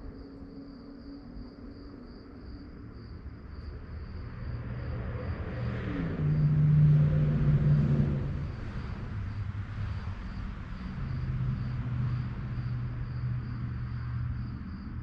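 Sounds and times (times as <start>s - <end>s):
crickets chirping: 0.0s - 15.0s
car driving past: 4.2s - 14.9s.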